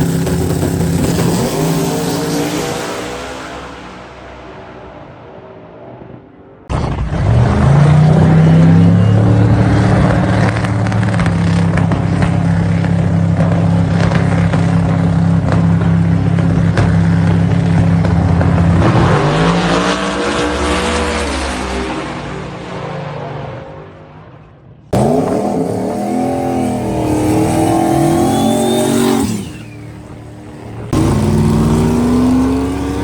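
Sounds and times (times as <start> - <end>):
truck engine running at high rpm: 0.0 - 4.2, 6.9 - 20.4, 25.0 - 33.0.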